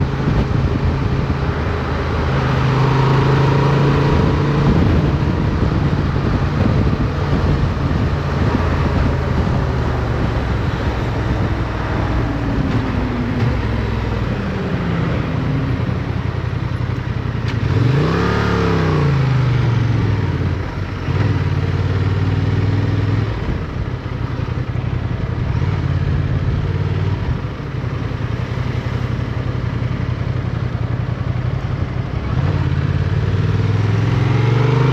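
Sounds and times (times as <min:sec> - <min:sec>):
motorcycle engine revving: 0:00.0 - 0:34.9
wind and road noise: 0:00.0 - 0:34.9.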